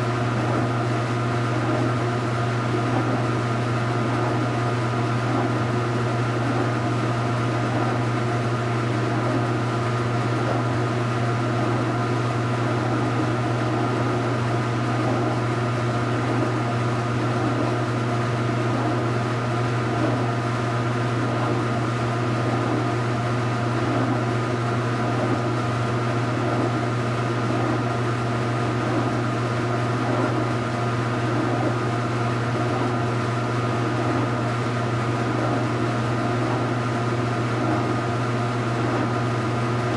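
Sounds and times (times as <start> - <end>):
washing machine churning: 0.0 - 39.9
washing machine motor hum: 0.0 - 39.9.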